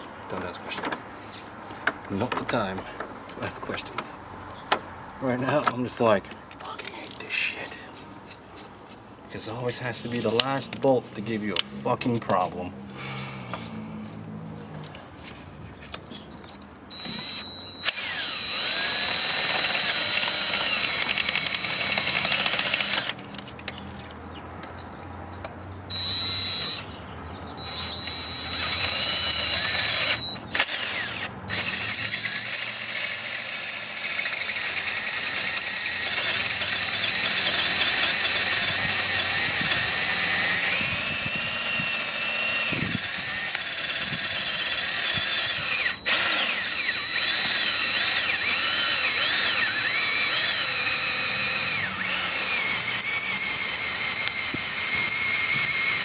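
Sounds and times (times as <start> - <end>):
power drill running: 16.9 - 23.2, 25.9 - 26.9, 27.6 - 56.0.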